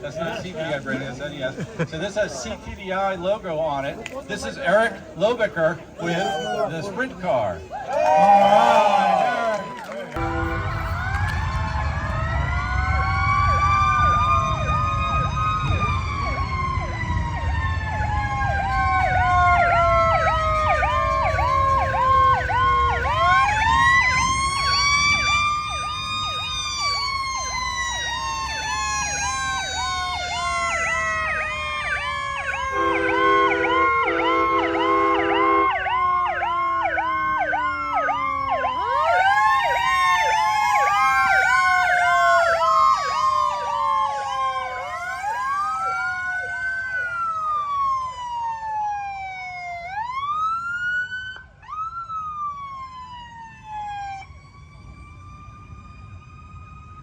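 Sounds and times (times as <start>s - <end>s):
siren wailing: 8.2s - 57.0s
siren yelping: 8.4s - 57.0s
horn blasts: 10.2s - 12.1s, 32.7s - 37.4s.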